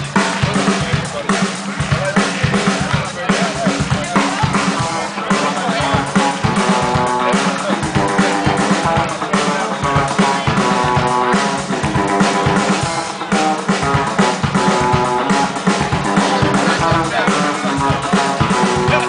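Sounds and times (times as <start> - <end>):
drums: 0.0 - 19.0
sustained pitched instruments: 0.0 - 19.0.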